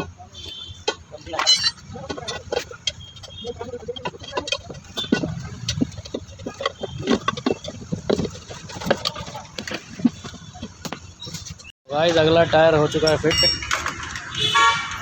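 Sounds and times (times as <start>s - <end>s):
hand tools clinking on metal: 0.0s - 11.6s
street traffic rumble: 0.0s - 15.0s.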